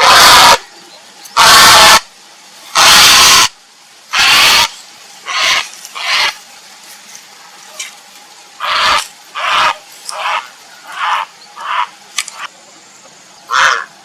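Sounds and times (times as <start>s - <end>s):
heron harsh calls: 0.0s - 0.6s, 1.4s - 2.0s, 2.7s - 3.5s, 4.1s - 4.7s, 5.3s - 6.4s, 8.6s - 11.9s, 13.5s - 13.9s.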